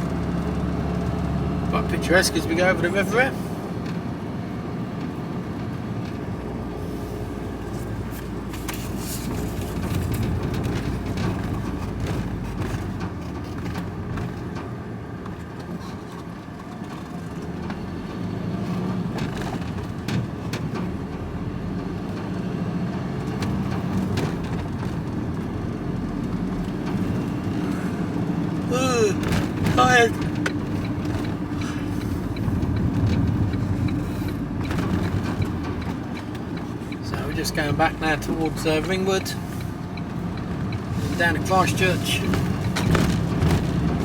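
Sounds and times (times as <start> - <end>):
engine and road rumble: 0.0 - 44.0
small knocks and rattles: 8.5 - 17.8, 29.2 - 37.7, 41.8 - 44.0.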